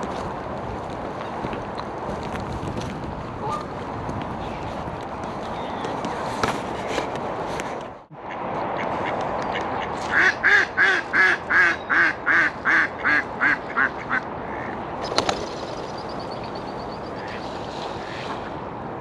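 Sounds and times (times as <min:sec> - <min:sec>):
duck quacking: 0:09.8 - 0:14.8.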